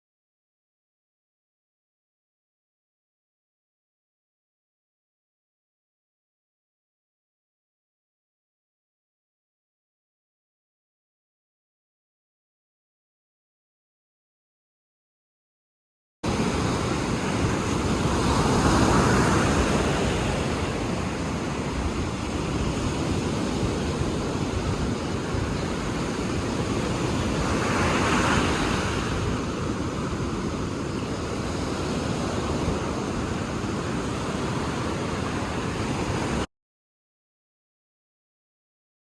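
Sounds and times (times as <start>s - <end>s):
ocean waves washing: 16.2s - 36.5s
waves breaking: 16.3s - 36.5s.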